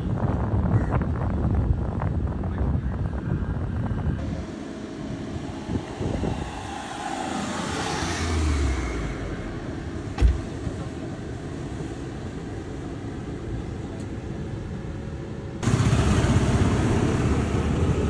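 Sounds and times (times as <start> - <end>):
road noise: 3.0 - 18.0
car engine rumbling: 3.7 - 18.0
sharp thump: 10.1 - 10.6.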